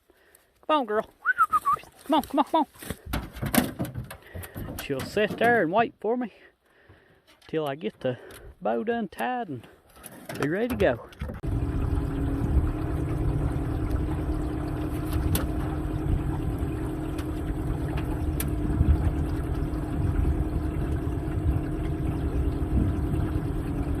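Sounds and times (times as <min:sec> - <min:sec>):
outboard motor running: 0:10.0 - 0:24.0.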